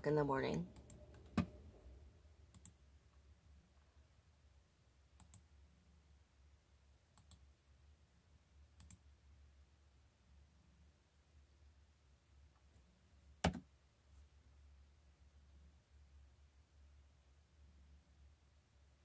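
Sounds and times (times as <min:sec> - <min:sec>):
low room hum: 0:00.0 - 0:19.0
computer mouse clicks: 0:02.5 - 0:02.8, 0:05.2 - 0:05.5, 0:07.1 - 0:07.5, 0:08.8 - 0:09.0.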